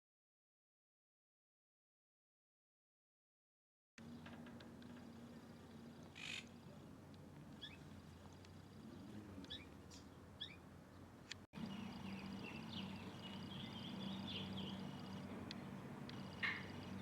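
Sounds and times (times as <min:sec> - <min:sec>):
birds chirping faintly: 0:04.0 - 0:17.0
faint low hum: 0:04.0 - 0:17.0.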